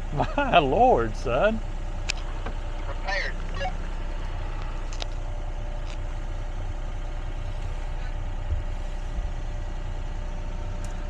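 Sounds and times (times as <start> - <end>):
excavator engine idling: 0.0 - 11.0.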